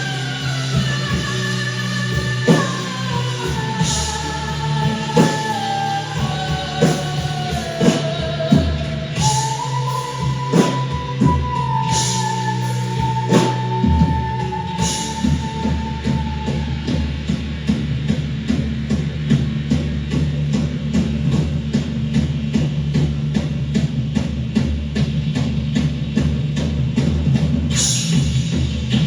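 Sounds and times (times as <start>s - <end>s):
held lead guitar line: 0.0s - 17.4s
bass guitar: 0.0s - 29.0s.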